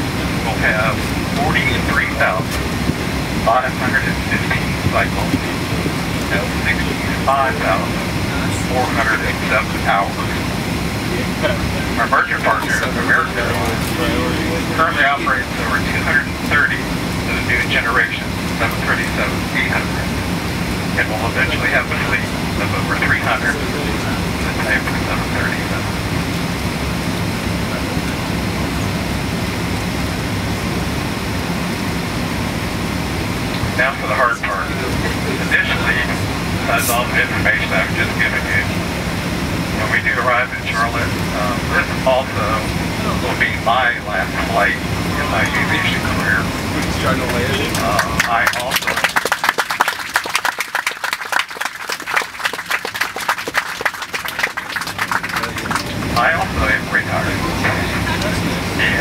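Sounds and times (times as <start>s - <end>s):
airplane cabin drone: 0.0s - 59.0s
passengers clapping: 11.9s - 19.9s, 21.0s - 25.8s, 45.2s - 59.0s.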